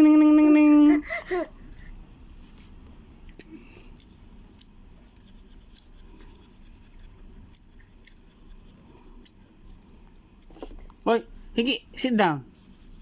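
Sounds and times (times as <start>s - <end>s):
drawing tool scribbling on paper: 12.6s - 13.0s.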